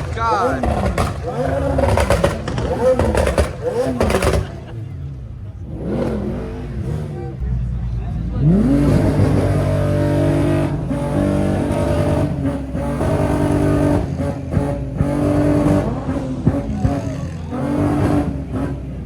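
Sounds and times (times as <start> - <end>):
sharp exhaust pops: 0.0 - 4.7
car engine revving hard: 0.0 - 19.0.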